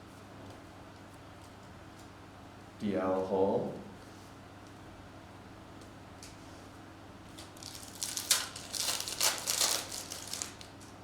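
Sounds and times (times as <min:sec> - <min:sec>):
foil wrapper crinkling and tearing: 0:07.4 - 0:10.9.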